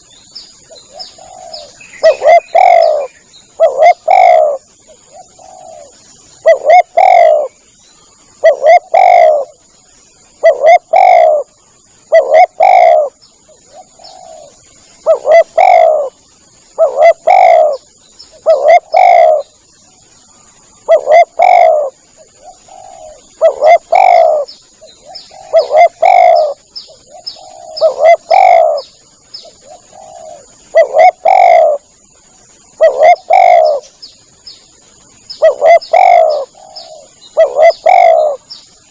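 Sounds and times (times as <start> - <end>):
dove cooing: 0.7 - 7.5, 8.4 - 9.6, 10.4 - 11.5, 12.1 - 16.2, 16.8 - 19.6, 20.8 - 28.9, 29.5 - 31.8, 32.8 - 33.9, 35.4 - 38.4.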